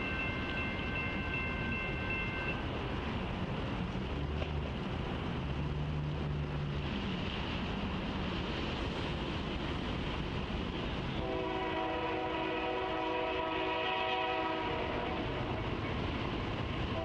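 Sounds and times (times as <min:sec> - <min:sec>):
diesel locomotive rumble: 0:00.0 - 0:17.0
rail noise: 0:00.0 - 0:17.0
locomotive air horn: 0:11.2 - 0:15.3.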